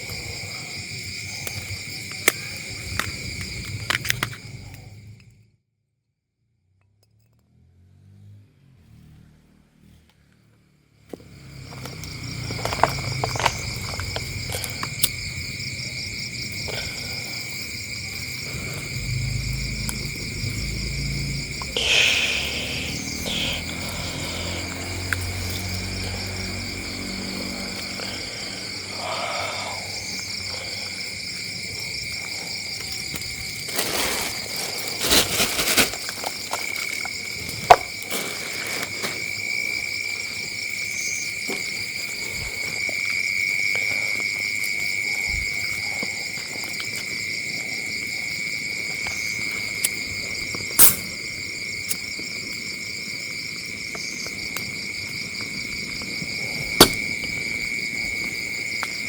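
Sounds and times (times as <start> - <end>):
crickets chirring: 0.0 - 5.6, 8.8 - 59.0
rustling: 33.5 - 39.3
sharp cracks or knocks: 56.8 - 57.1.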